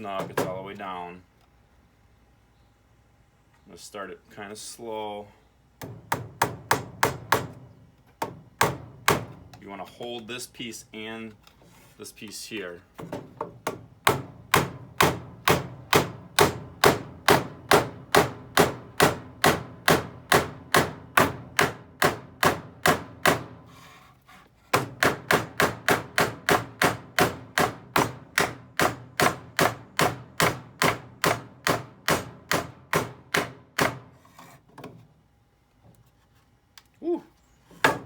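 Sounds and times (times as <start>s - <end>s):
hammer driving nail into wood: 5.8s - 9.4s, 13.4s - 23.6s, 24.7s - 34.1s.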